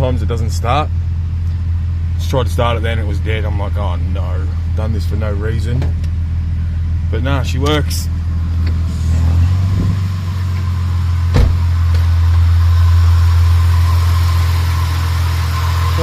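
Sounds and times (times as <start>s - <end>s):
car engine idling: 0.0s - 16.0s
sharp knock: 11.3s - 11.6s.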